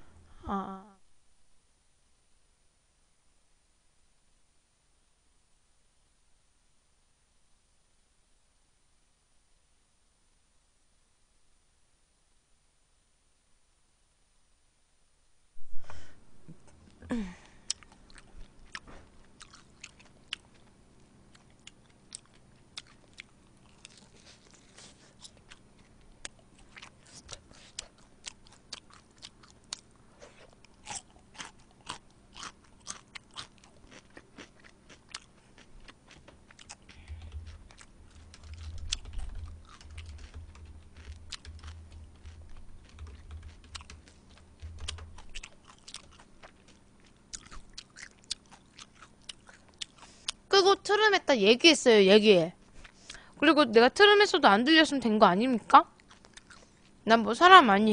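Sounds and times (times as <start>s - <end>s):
chewing and crunching fried chicken: 16.8s - 50.5s, 55.7s - 57.1s
low dull thuds: 37.0s - 45.4s.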